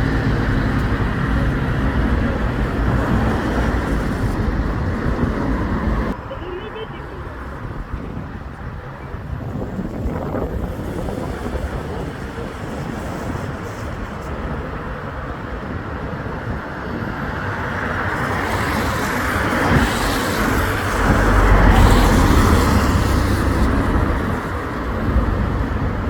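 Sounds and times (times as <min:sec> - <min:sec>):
road traffic noise: 0:00.0 - 0:26.0
vehicle passing close: 0:18.2 - 0:26.0.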